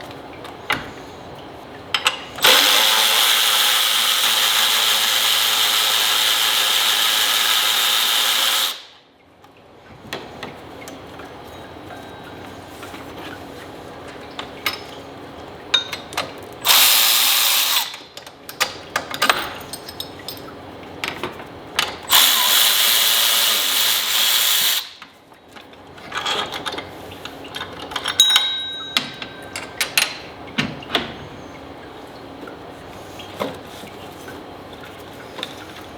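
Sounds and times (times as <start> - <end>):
power tool running: 2.4 - 9.0, 16.6 - 18.0, 22.1 - 25.0
hand tools clicking and clinking: 27.6 - 30.2.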